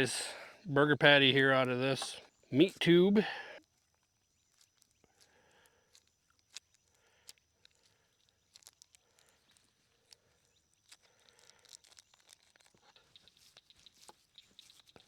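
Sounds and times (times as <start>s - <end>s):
plastic and foil crinkling: 3.6s - 15.0s.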